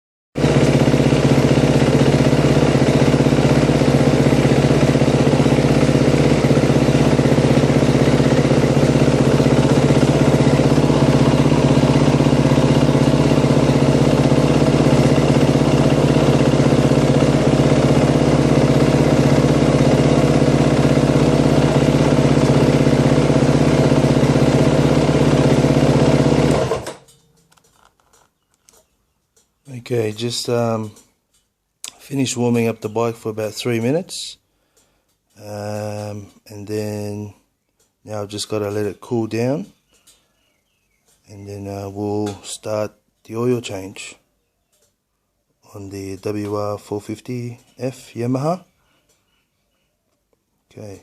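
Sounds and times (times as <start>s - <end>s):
motorcycle engine idling: 0.4s - 31.4s.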